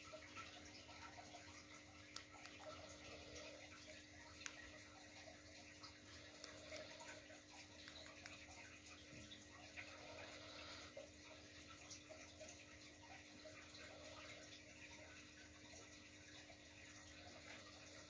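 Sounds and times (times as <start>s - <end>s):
faint ticks: 5.8s - 8.7s.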